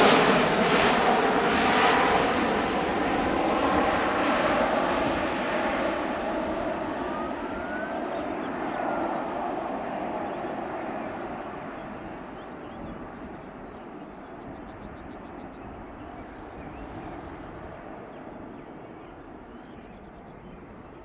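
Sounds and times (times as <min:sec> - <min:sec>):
jet engine rumble: 0:00.0 - 0:14.0
bird trilling: 0:06.8 - 0:09.5.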